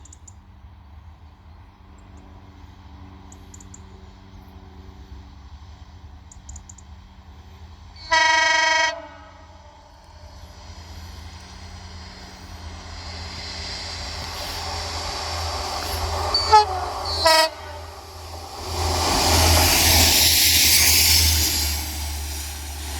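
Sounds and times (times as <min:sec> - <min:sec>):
approaching train rumble: 0:00.0 - 0:22.9
train horn blast: 0:08.0 - 0:10.3, 0:15.3 - 0:19.5.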